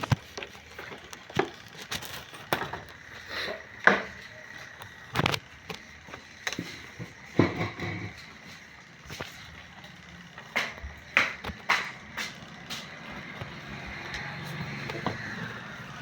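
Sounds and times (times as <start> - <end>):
hard objects knocking: 6.5 - 8.3, 10.4 - 13.8.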